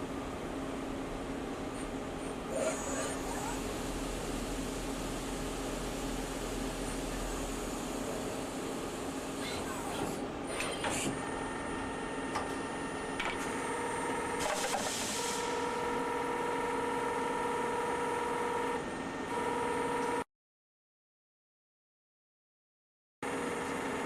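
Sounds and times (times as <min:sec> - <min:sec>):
machine whine: 0:10.4 - 0:20.2.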